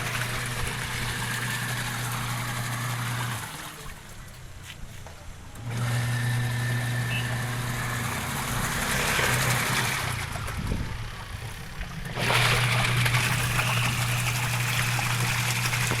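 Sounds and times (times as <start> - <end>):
washing machine motor humming: 0.0 - 4.4, 5.5 - 16.0
water swishing in tub: 0.0 - 4.5, 11.4 - 16.0.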